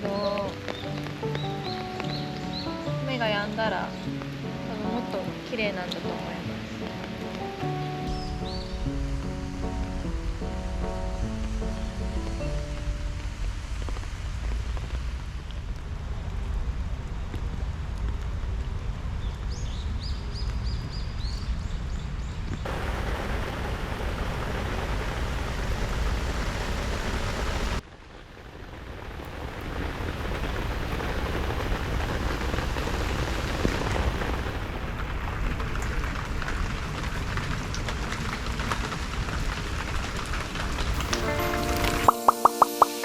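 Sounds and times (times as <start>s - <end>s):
steady rain falling: 0.0s - 43.0s
low rumble: 8.1s - 19.6s
short high chirps: 41.0s - 43.0s.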